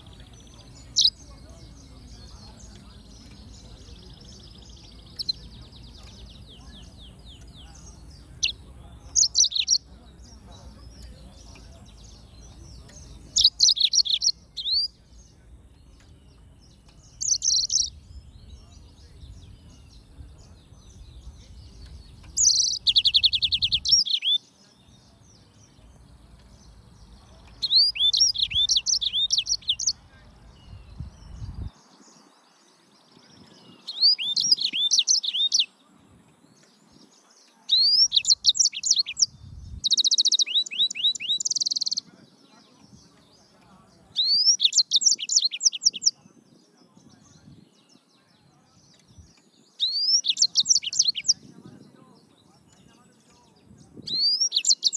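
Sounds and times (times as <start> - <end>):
canary singing: 0.0 - 24.9, 25.5 - 31.6, 33.6 - 35.8, 37.7 - 42.1, 43.8 - 46.1, 48.9 - 51.4, 54.0 - 54.9.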